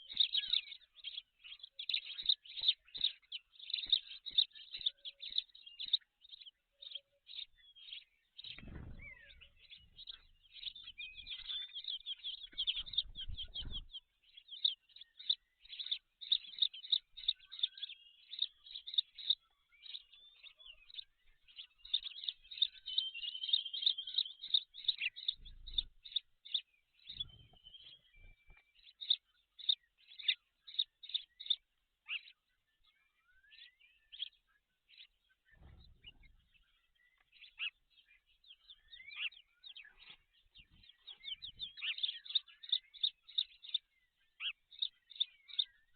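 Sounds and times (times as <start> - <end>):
birds chirping: 0.0 - 45.9
low rustling thumps: 8.4 - 10.2, 12.5 - 14.0.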